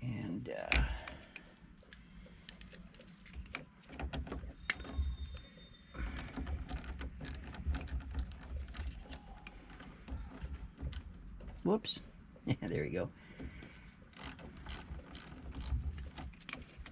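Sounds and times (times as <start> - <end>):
wrench clicking on nuts: 6.0 - 9.9, 14.1 - 16.9.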